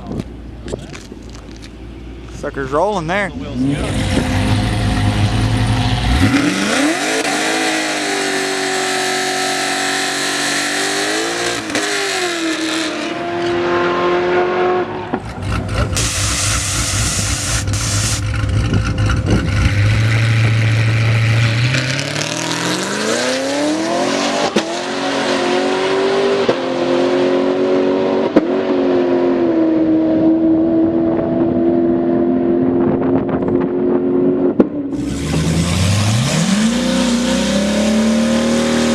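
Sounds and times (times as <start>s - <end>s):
drag car engines accelerating: 3.2s - 28.4s, 34.9s - 38.9s
low engine rumble: 15.2s - 21.6s.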